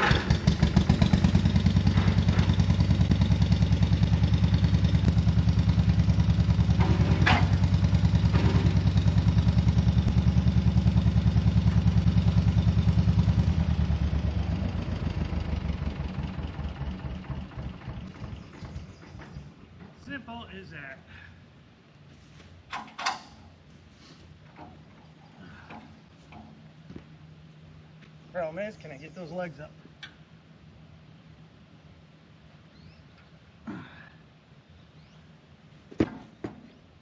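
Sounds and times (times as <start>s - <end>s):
tractor engine putt-putt: 0.0s - 20.1s, 22.7s - 23.6s, 24.4s - 28.2s
metal clank: 1.8s - 2.9s, 6.6s - 9.5s, 22.7s - 23.6s.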